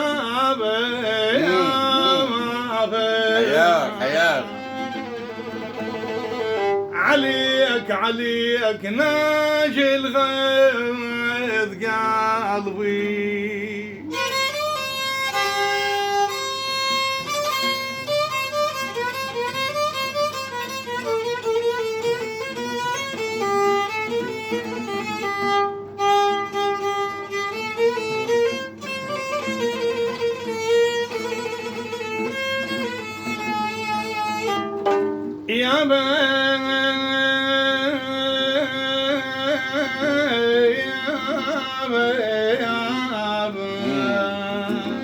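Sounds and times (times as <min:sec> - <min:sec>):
man singing: 0:00.0 - 0:04.8, 0:06.9 - 0:14.4, 0:35.5 - 0:45.0
violin playing fast melody: 0:03.4 - 0:06.9, 0:14.3 - 0:35.0.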